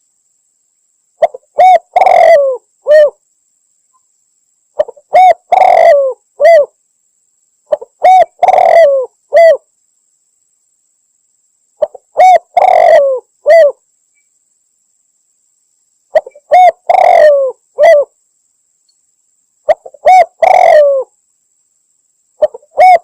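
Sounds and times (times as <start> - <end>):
dove cooing: 1.2 - 3.2, 4.8 - 6.8, 7.7 - 9.6, 11.8 - 13.8, 16.1 - 18.1, 19.7 - 21.1, 22.4 - 23.0.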